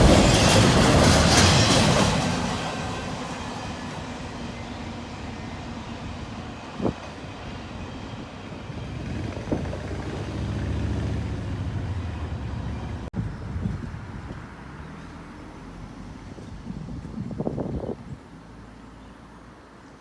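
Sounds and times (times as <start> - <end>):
low vehicle rumble: 8.7 - 18.2.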